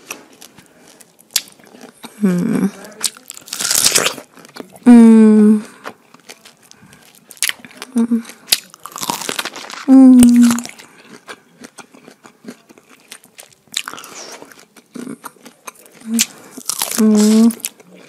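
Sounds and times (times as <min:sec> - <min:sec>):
chewing and lip-smacking: 0:00.0 - 0:04.8, 0:05.6 - 0:18.0
person humming: 0:02.2 - 0:02.8, 0:04.9 - 0:05.7, 0:07.9 - 0:08.3, 0:09.9 - 0:10.6, 0:17.0 - 0:17.6.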